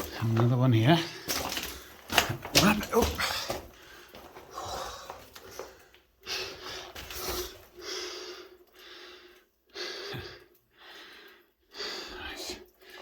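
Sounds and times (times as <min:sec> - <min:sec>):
person breathing hard: 0:03.4 - 0:12.2.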